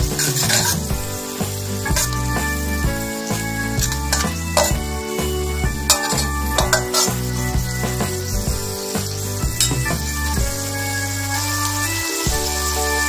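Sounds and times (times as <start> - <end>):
music with strong bass: 0.0 - 13.0
sauce sizzling in a wok: 0.0 - 13.0
ladle scraping a wok: 0.1 - 0.9, 1.8 - 2.4, 3.8 - 4.9, 5.8 - 8.0.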